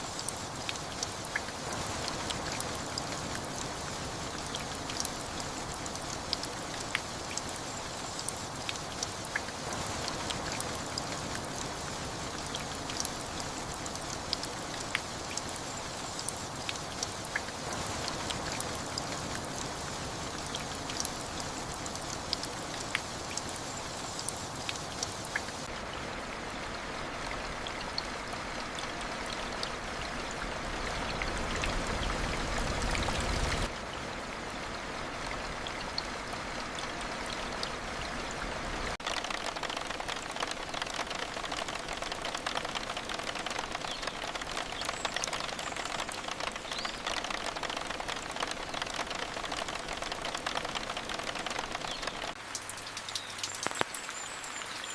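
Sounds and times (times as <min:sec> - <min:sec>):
raindrops ticking: 0:00.0 - 0:25.8, 0:38.9 - 0:54.9
steady rain falling: 0:00.0 - 0:54.9.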